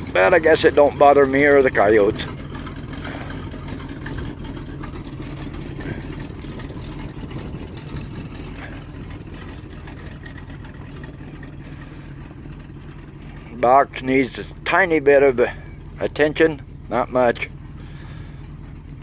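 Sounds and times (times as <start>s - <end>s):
truck engine idling roughly: 0.0s - 19.0s.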